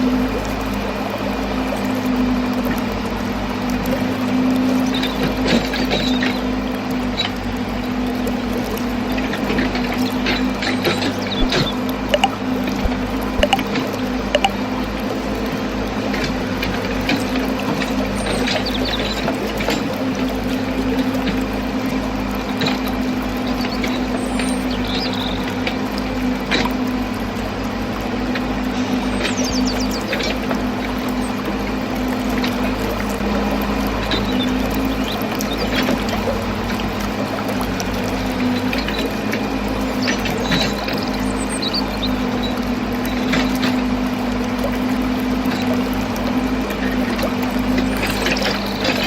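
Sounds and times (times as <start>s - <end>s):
faint high chirps: 12.2s - 12.4s, 13.4s - 13.6s
clicks and ticks: 12.2s - 13.6s.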